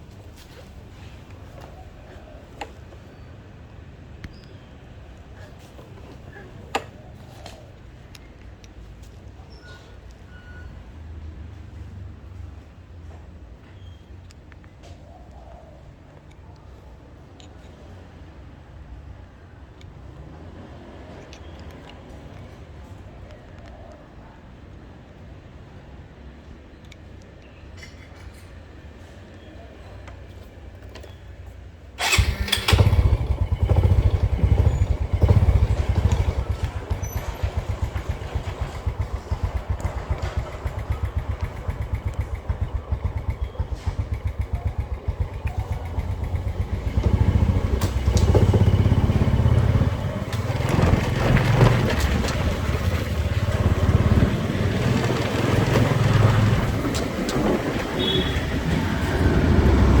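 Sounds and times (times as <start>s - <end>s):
motorcycle engine running: 32.0s - 60.0s.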